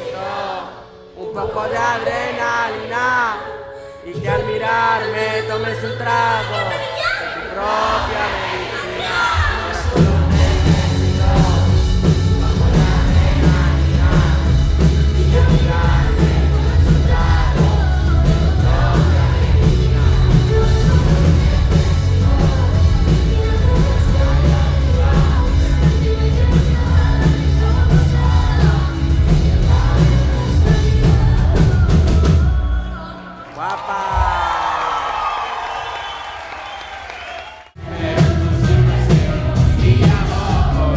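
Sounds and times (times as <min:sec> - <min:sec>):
person singing: 0:09.0 - 0:34.3
live music with heavy bass: 0:09.2 - 0:33.0, 0:37.8 - 0:40.9.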